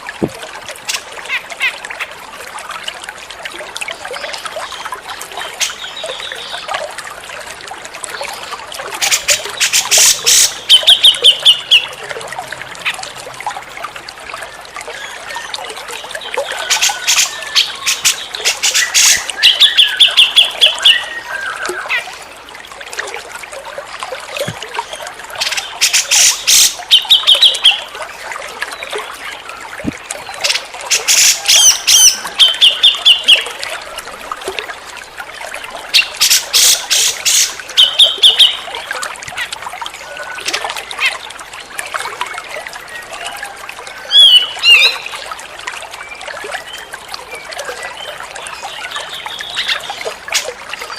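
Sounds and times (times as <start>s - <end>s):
water trickling: 0.0s - 50.9s.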